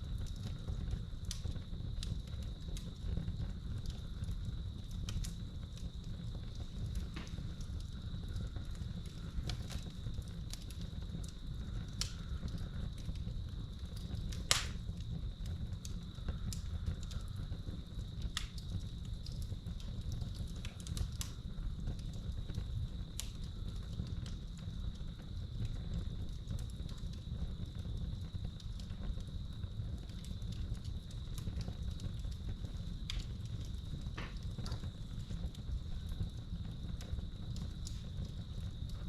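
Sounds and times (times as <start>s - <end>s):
crickets trilling: 0.0s - 39.0s
wood fire crackling: 0.0s - 39.0s.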